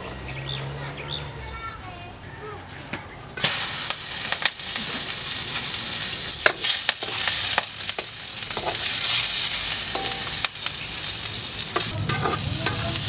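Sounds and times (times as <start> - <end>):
food sizzling in hot oil: 3.4 - 13.0
spatula scraping a wok: 6.0 - 13.0.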